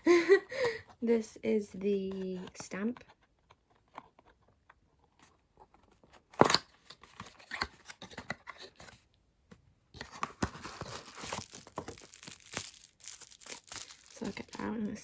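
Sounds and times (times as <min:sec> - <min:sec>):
taps and crinkles: 0:02.1 - 0:15.0
packaging rustling: 0:10.0 - 0:15.0.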